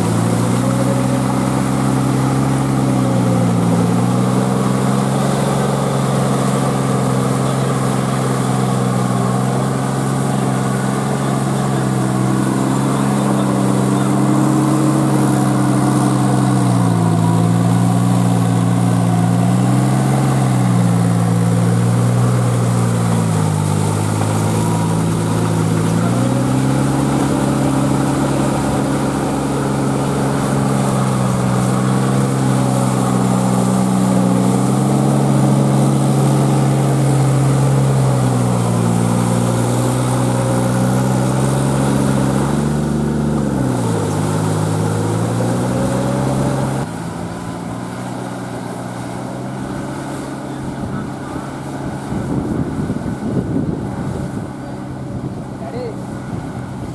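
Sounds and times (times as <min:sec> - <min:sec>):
tractor diesel engine under load: 0:00.0 - 0:56.9.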